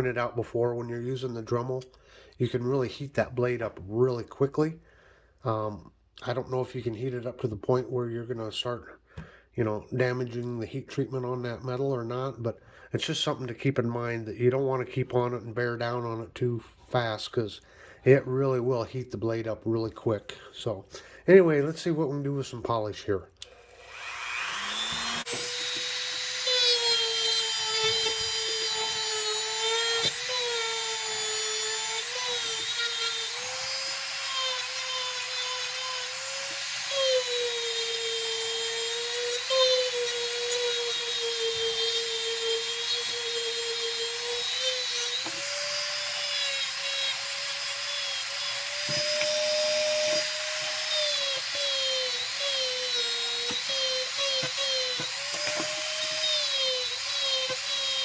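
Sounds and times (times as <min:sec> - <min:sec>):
rotary tool whining on steel: 0:23.5 - 0:58.0.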